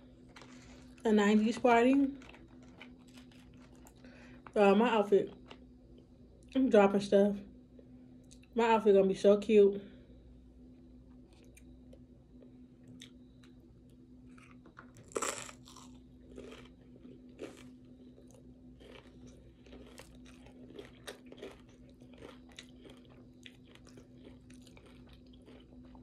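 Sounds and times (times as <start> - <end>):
faint steady hum: 0.0 - 26.0
crunching chips: 0.1 - 4.6, 14.3 - 26.0
chewing: 0.2 - 1.0, 2.0 - 4.6, 12.8 - 13.6, 14.3 - 26.0.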